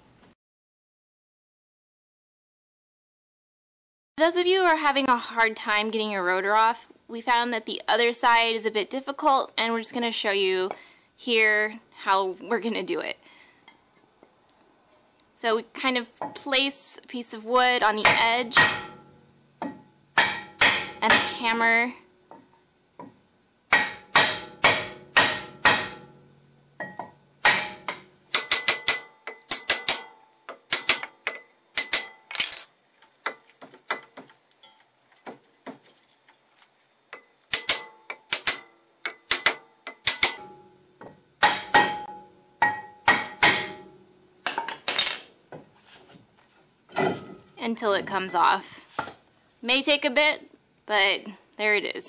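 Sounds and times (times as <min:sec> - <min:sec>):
hammer striking wood on metal: 0:18.0 - 0:21.4, 0:23.0 - 0:26.2, 0:26.8 - 0:32.4, 0:37.1 - 0:45.2.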